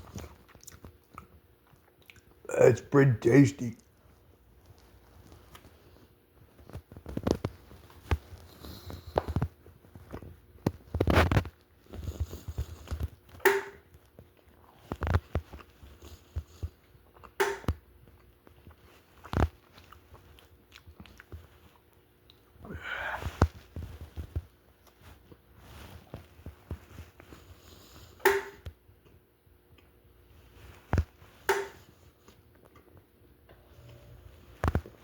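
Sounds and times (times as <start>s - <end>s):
chewing and biting pizza: 0.0s - 2.4s, 14.0s - 17.4s, 18.0s - 22.6s
short clicks and smacks: 17.4s - 17.8s, 28.2s - 28.7s, 31.5s - 31.9s.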